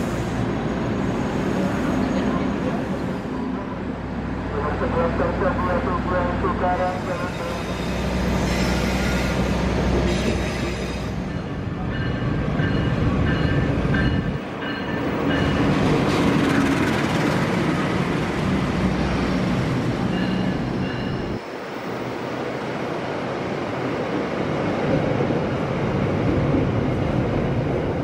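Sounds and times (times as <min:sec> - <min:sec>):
train wheels rumbling on rails: 0:06.9 - 0:28.0.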